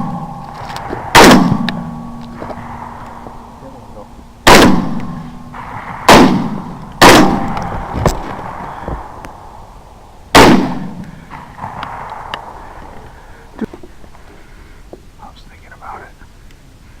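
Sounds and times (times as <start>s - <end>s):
echoing gunshots: 0.0s - 13.5s.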